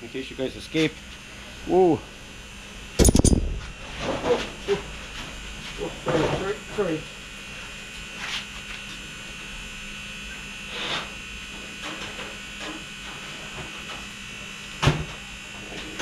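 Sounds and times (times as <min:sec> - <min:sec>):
electrical buzz: 0:02.2 - 0:06.2.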